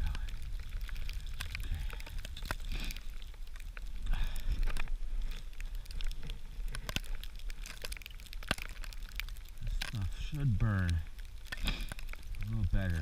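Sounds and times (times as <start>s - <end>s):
wind rumble on microphone: 0.0s - 2.7s
kindling fire crackling: 0.0s - 13.0s.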